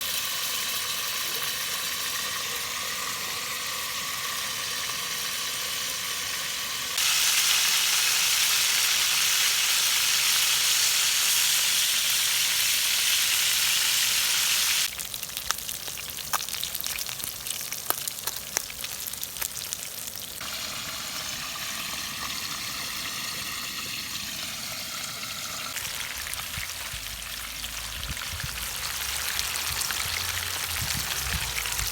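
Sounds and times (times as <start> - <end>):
running water hiss: 0.0 - 14.9.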